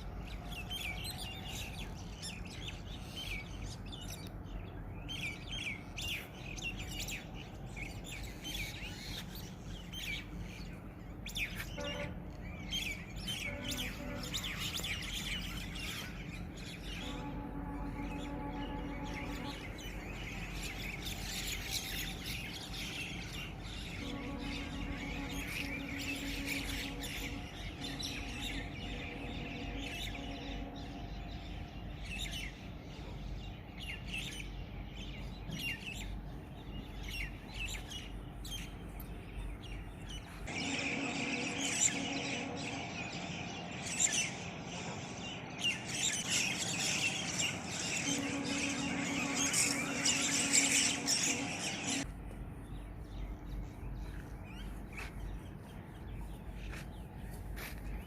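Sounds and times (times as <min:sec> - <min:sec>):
small birds chirping and twittering: 0:00.0 - 0:58.0
steady low hum: 0:00.0 - 0:58.0.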